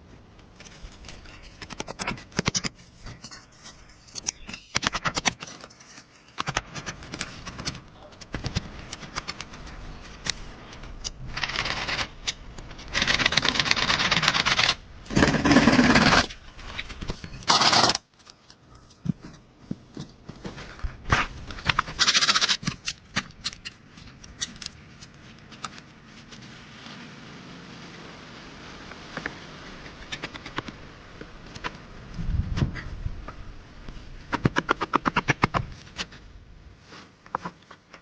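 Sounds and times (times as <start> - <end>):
rustling and scraping: 0.0 - 27.2, 35.2 - 38.0.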